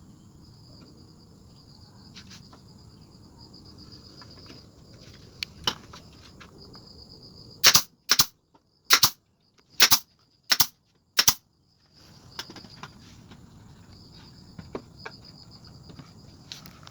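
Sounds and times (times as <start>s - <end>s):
crickets chirping: 0.0s - 16.9s
hammering nails into wood: 7.6s - 8.3s, 8.9s - 9.2s, 9.8s - 11.4s.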